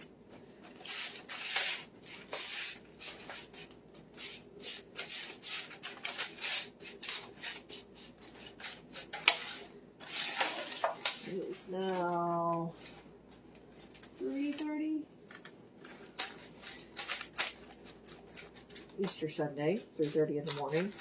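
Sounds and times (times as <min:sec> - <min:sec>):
crumbs scraping in baking pan: 0:04.2 - 0:12.7, 0:17.8 - 0:21.0.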